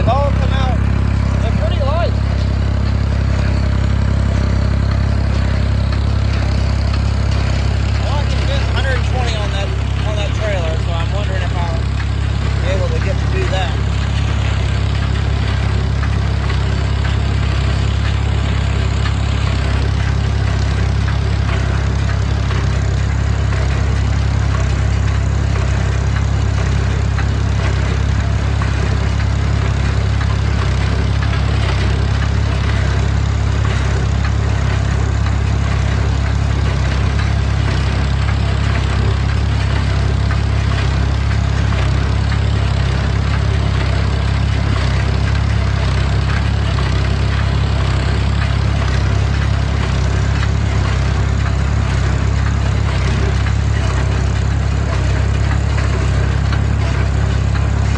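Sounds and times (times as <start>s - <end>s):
tractor engine running: 0.0s - 57.9s.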